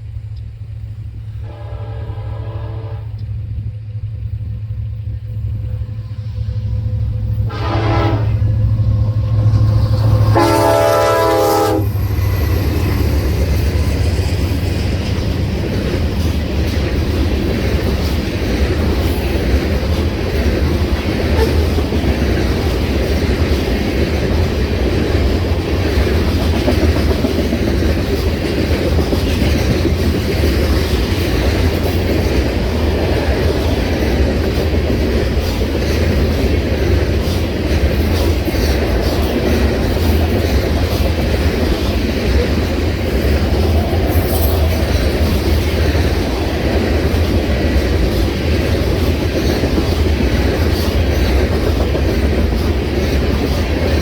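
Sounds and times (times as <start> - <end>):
diesel engine rumble: 0.0 - 35.4
train horn blast: 1.4 - 3.3, 5.6 - 12.4, 21.2 - 21.8
train cars clattering on rails: 6.8 - 54.0.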